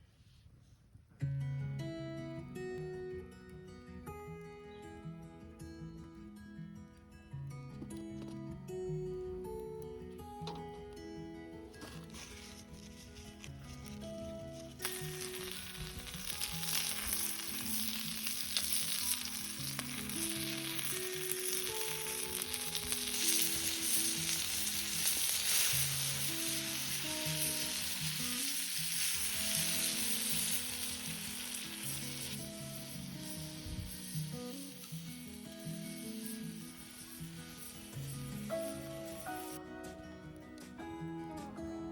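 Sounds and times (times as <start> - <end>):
quiet background music: 0.0 - 41.9
food sizzling in a pan: 11.8 - 39.6.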